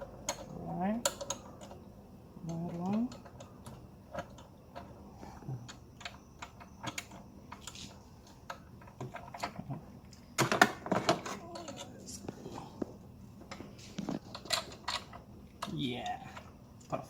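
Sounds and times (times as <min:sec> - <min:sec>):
tools clicking and tapping: 0:00.0 - 0:01.8, 0:05.6 - 0:12.0.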